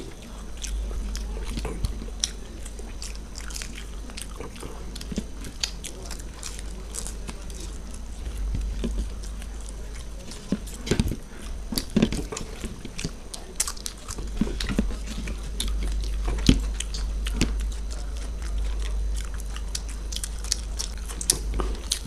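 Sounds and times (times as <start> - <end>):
pastry crunching: 0.0 - 22.0
wet chewing mouth smacks: 0.0 - 22.0.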